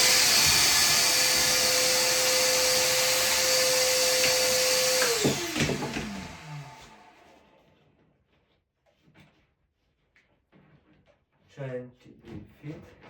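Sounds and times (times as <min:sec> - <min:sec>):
vacuum cleaner motor whining: 0:00.0 - 0:07.6.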